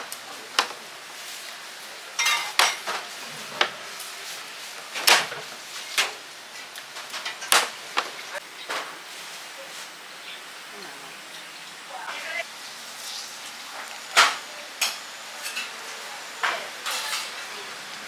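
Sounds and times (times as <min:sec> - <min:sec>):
utensils and dishes clattering: 0:02.2 - 0:03.8, 0:04.9 - 0:09.0, 0:13.0 - 0:17.7.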